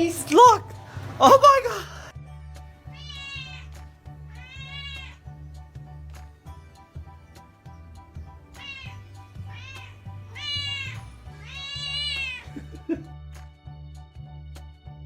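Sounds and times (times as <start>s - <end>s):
background music with steady beat: 0.0s - 15.0s
cat meowing: 2.9s - 5.3s, 8.6s - 12.9s.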